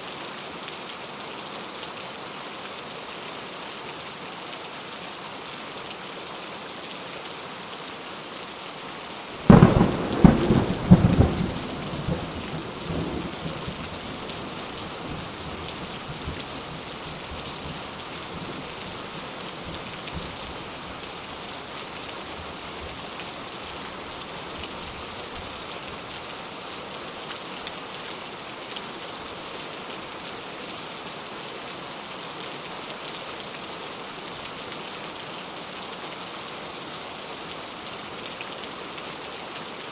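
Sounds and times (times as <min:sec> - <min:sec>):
steady rain falling: 0:00.0 - 0:39.9
thunder cracks and rumble: 0:09.4 - 0:15.4.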